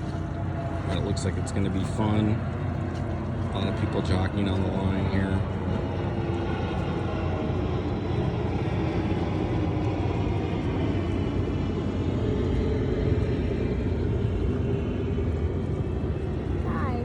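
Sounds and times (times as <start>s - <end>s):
motorboat engine running: 0.0s - 17.0s
water noise: 0.0s - 17.0s
wind: 0.0s - 17.0s.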